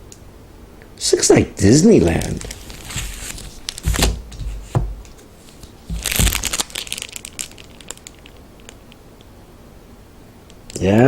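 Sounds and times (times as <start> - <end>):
plastic packaging crinkling: 1.9 - 9.0.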